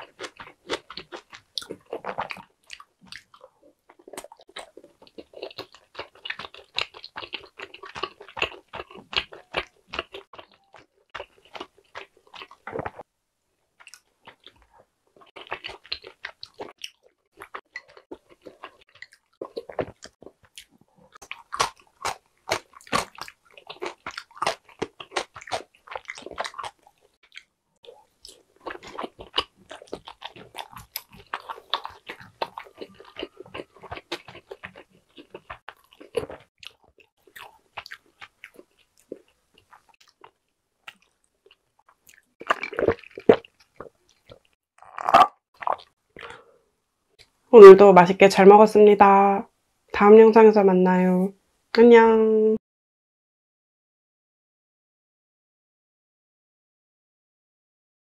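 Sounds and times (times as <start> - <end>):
crunchy chewing of pickle: 0.0 - 13.1, 13.8 - 46.5.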